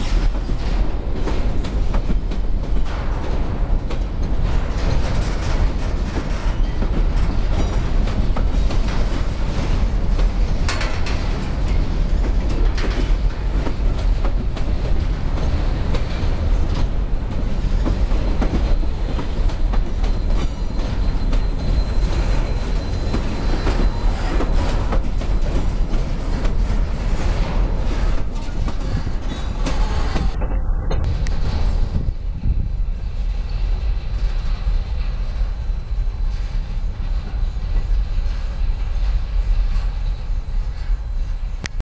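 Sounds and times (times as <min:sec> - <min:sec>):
train wheels clanking over rail joints: 0:00.0 - 0:41.8
faint high squeal: 0:17.7 - 0:25.6.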